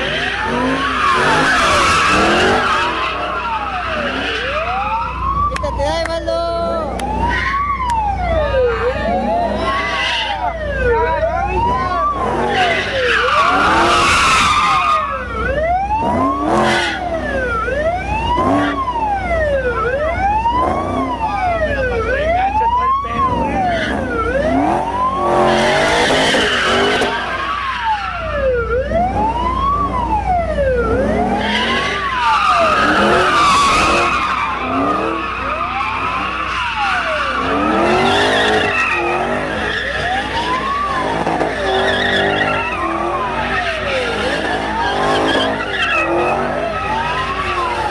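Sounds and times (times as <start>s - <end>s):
tyres squealing: 0.0s - 4.8s, 12.0s - 15.2s, 31.4s - 47.9s
police siren wailing: 0.0s - 47.9s.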